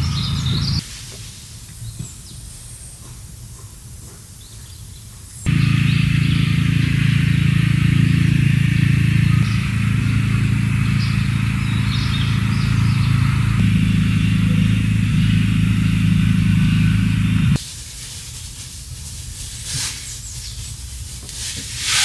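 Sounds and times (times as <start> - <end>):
machine motor hum: 5.5 - 17.6
airy hiss: 21.3 - 22.0.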